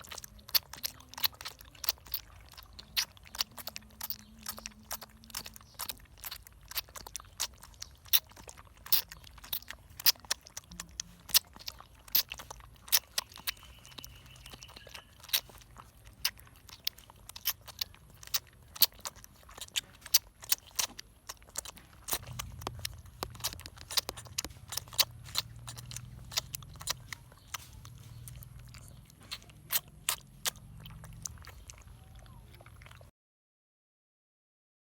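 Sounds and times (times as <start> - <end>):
low steady hum: 0.0 - 33.0
puppy chewing crunching clicks: 0.0 - 33.1.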